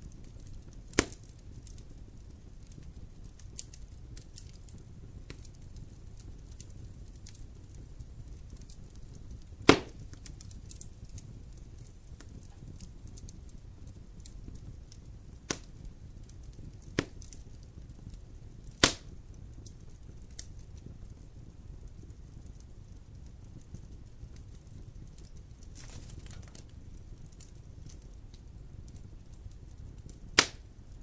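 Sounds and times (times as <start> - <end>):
loud sharp fire pops: 0.0 - 21.3, 23.5 - 31.0
wood fire crackling: 0.0 - 31.0.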